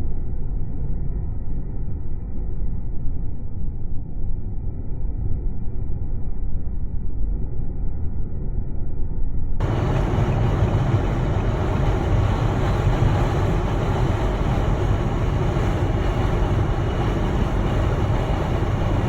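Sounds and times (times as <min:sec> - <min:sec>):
blizzard wind rushing: 0:09.6 - 0:19.0
wind rumble on microphone: 0:09.6 - 0:19.0.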